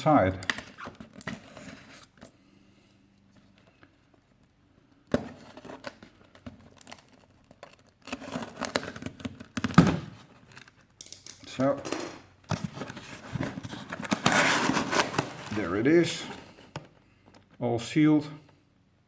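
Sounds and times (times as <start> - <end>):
cardboard and tape crinkling: 5.2 - 10.9, 12.5 - 17.5
cardboard ripping: 12.8 - 15.6.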